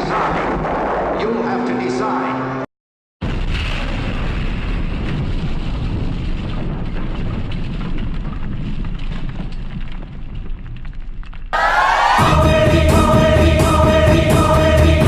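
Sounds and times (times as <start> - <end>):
explosion rumble with crackling: 0.0 - 1.3, 3.2 - 11.6.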